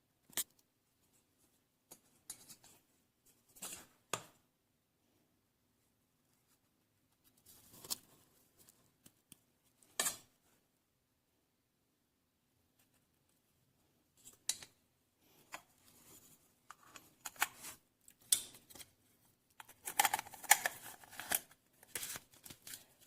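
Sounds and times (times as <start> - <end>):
handling scrapes and clicks: 15.4 - 18.9, 19.5 - 23.0.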